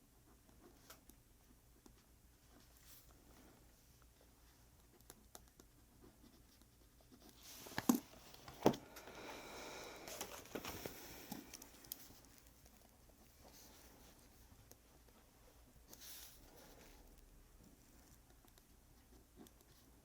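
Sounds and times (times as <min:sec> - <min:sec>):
pen scratching on paper: 0:05.8 - 0:07.6
paper rustling: 0:10.0 - 0:12.8.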